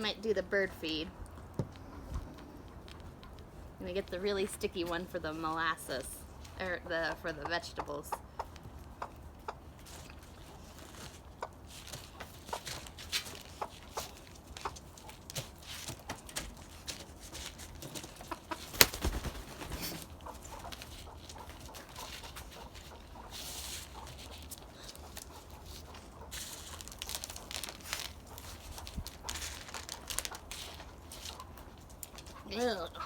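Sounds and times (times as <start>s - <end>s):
clicks and rustles of hands: 8.4s - 32.5s
chickens clucking softly: 17.9s - 26.4s.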